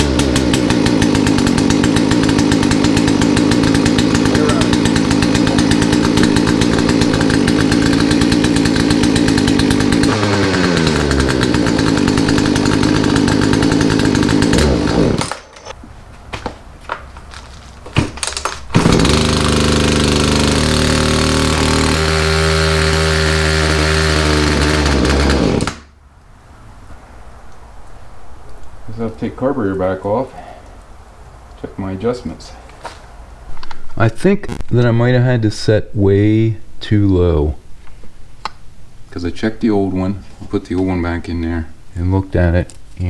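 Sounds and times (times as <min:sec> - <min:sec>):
chainsaw engine running: 0:00.0 - 0:15.8, 0:18.7 - 0:25.9, 0:34.4 - 0:34.6.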